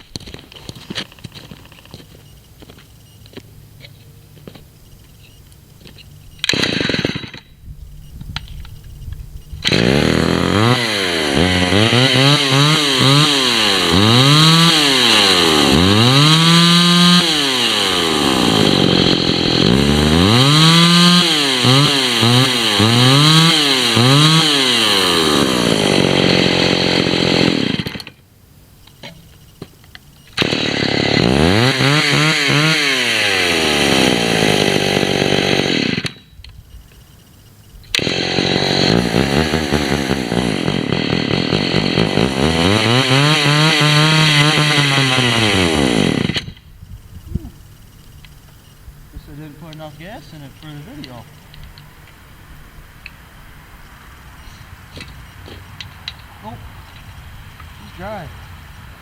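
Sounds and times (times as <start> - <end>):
chainsaw being pull-started: 5.9 - 7.6, 9.6 - 28.2, 30.2 - 36.3, 37.8 - 46.7
chainsaw revving: 6.1 - 7.5, 9.6 - 28.2, 30.3 - 36.3, 37.7 - 51.8.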